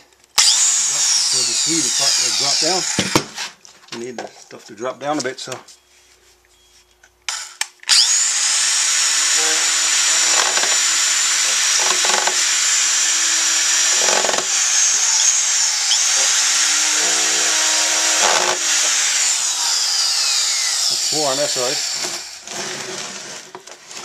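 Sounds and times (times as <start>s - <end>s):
electric drill whining: 0.4s - 3.3s, 7.9s - 24.0s.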